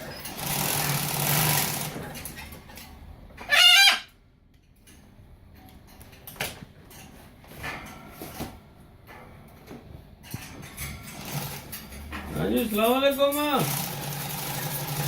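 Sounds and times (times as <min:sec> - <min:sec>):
parrot squawking: 0:03.4 - 0:04.2.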